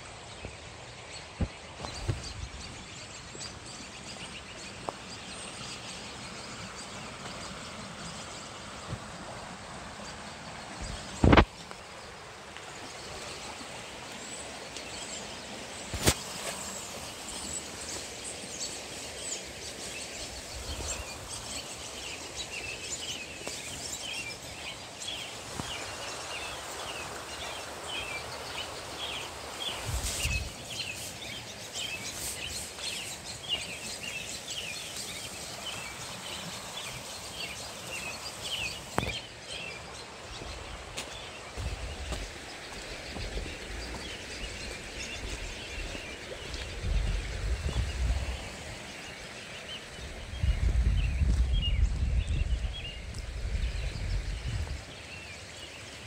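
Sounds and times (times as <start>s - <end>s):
creek rushing: 0.0s - 56.0s
small birds chirping: 0.0s - 56.0s.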